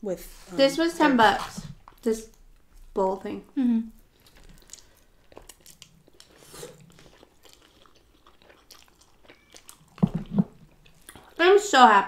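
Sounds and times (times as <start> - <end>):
wet chewing sounds: 3.9 - 11.5.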